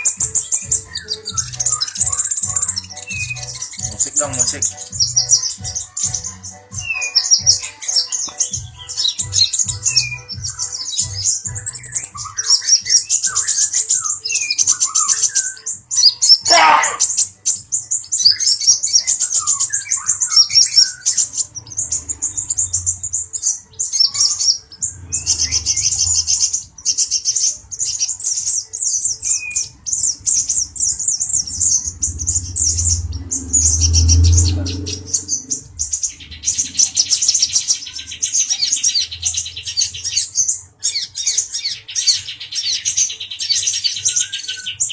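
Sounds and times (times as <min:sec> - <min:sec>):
bird twittering song: 0:00.0 - 0:44.9
bird downward-sliding note: 0:31.1 - 0:36.9.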